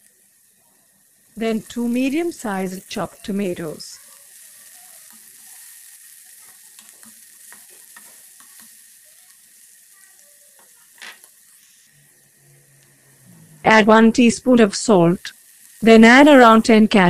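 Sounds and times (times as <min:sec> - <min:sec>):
onion and tomato sizzling in oil: 0:00.0 - 0:17.0
spatula scraping and tapping pan: 0:06.5 - 0:08.9, 0:10.6 - 0:11.9.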